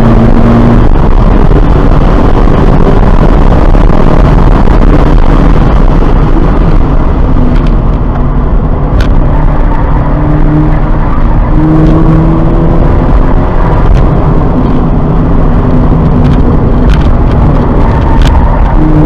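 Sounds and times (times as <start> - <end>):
car engine running: 0.0 - 19.0
road and wind noise: 0.0 - 19.0.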